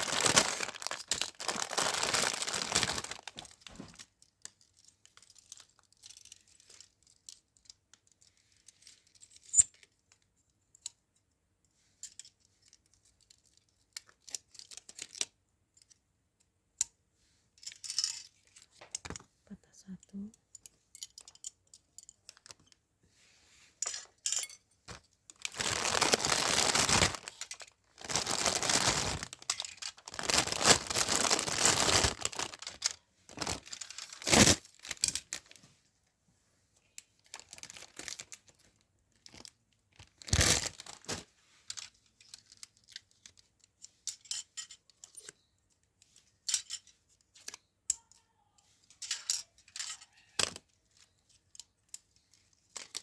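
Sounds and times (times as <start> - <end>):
packaging ripping: 0.0 - 3.4, 25.5 - 35.0, 40.2 - 41.2
packaging rustling: 0.0 - 4.0, 24.9 - 35.6, 37.3 - 38.4, 40.2 - 41.2.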